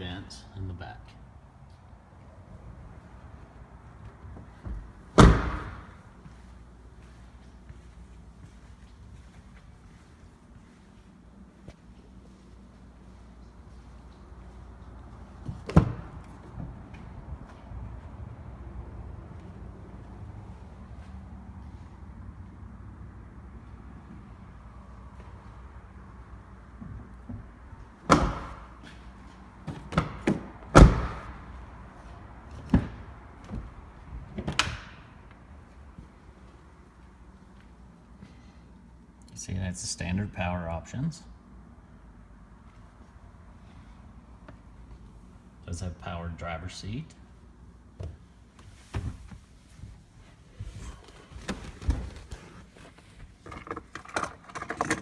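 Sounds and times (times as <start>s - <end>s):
truck doors opening and shutting: 4.0s - 6.2s, 15.2s - 17.7s, 26.8s - 35.5s
handling knocks and rustles: 48.0s - 55.0s.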